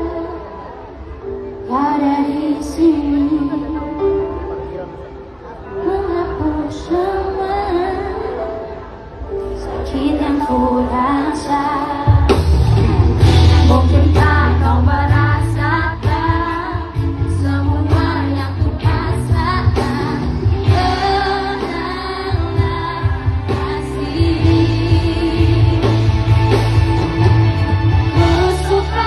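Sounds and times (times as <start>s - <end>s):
pop song with female vocal: 1.6s - 4.2s, 5.8s - 8.4s, 9.6s - 12.6s, 13.2s - 29.0s
heavy bass and drums: 12.1s - 29.0s.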